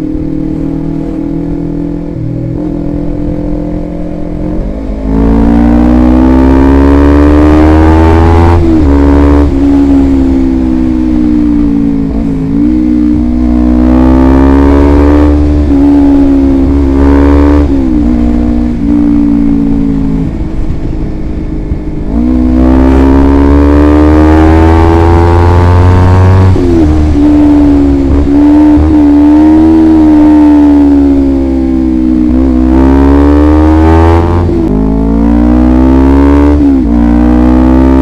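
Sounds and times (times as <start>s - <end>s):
motorcycle engine shifting gears: 0.0s - 38.0s.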